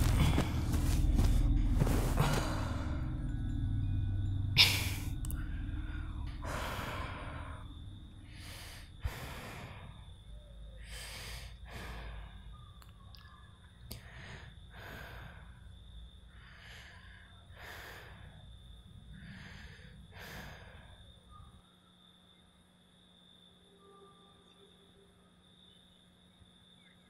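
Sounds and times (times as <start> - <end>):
person breathing heavily: 0.0 - 3.2, 4.6 - 12.6, 13.9 - 21.3
low steady hum: 0.0 - 27.0.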